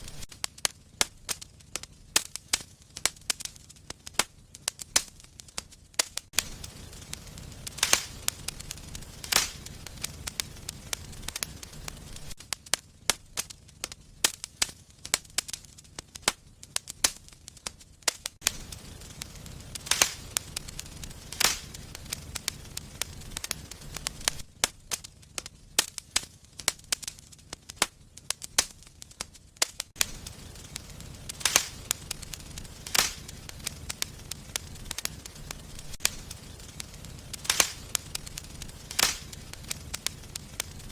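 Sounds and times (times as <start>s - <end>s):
low steady rumble: 0.0s - 0.3s
fire snapping: 0.0s - 40.9s
wood fire crackling: 0.0s - 40.9s.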